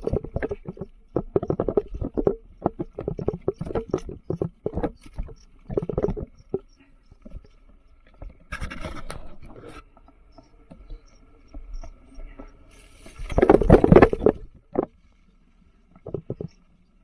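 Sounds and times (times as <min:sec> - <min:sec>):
bike tyres scraping and rattling on dirt: 0:00.0 - 0:06.8, 0:11.4 - 0:16.6.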